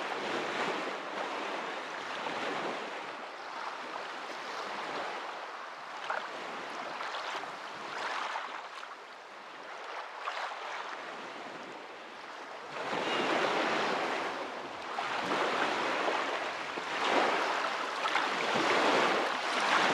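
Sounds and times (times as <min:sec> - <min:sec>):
water rushing: 0:13.9 - 0:19.9.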